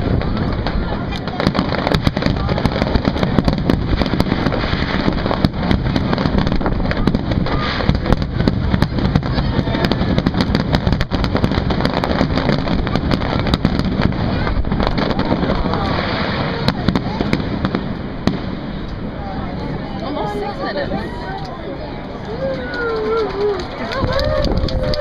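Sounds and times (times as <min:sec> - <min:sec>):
rumble and crackle: 0:00.0 - 0:20.0
fireworks bursting: 0:00.0 - 0:25.0.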